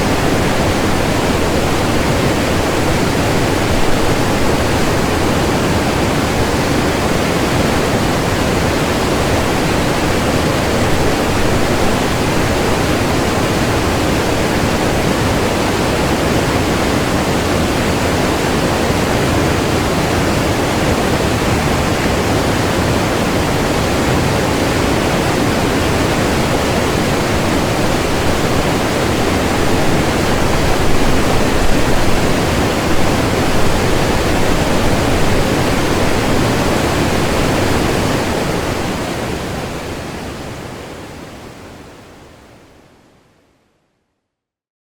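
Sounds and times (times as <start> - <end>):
river water rushing: 0.0 - 42.6.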